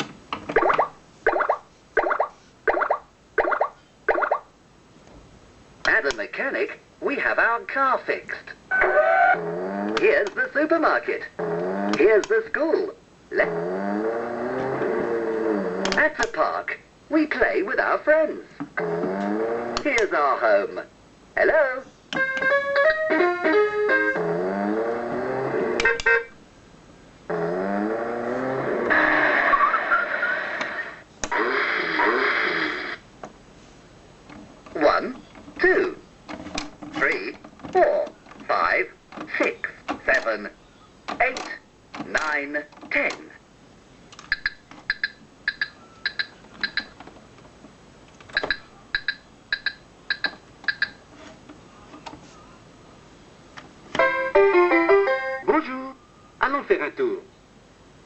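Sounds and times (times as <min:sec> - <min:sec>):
toy electronic beeps: 0:44.3 - 0:47.0, 0:48.4 - 0:51.0
sharp clicks: 0:48.1 - 0:51.0.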